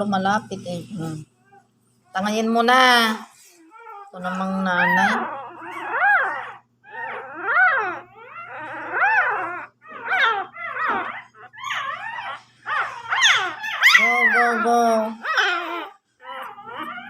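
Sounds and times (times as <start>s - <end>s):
puppy whining squeals: 0.7s - 17.0s.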